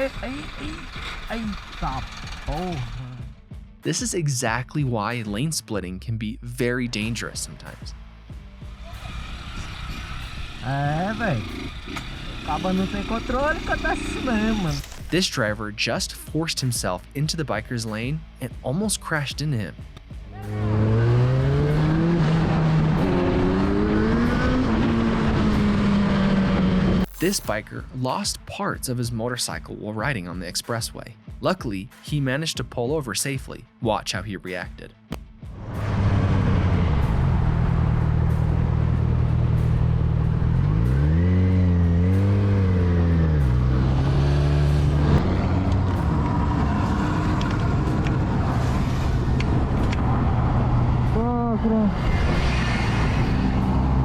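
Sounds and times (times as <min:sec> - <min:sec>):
motorcycle engine accelerating: 0:00.0 - 0:03.6, 0:08.6 - 0:15.1, 0:20.4 - 0:27.6, 0:35.5 - 0:54.0
wind and road noise: 0:08.2 - 0:15.1, 0:19.9 - 0:27.4, 0:35.4 - 0:54.0.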